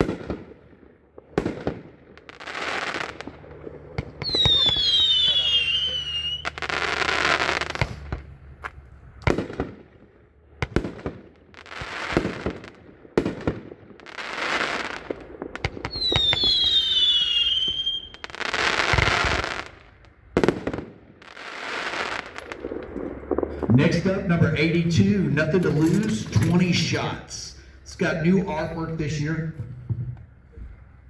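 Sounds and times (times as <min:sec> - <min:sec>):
firework bangs and hissing bursts: 0:00.0 - 0:27.2
falling firework whistle: 0:04.2 - 0:08.0, 0:15.8 - 0:19.6.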